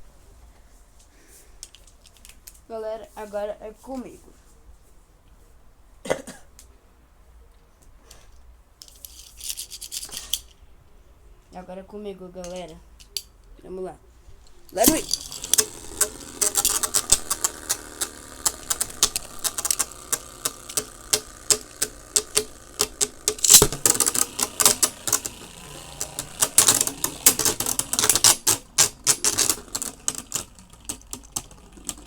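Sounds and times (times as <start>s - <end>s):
spinning tops clashing: 14.5s - 32.0s.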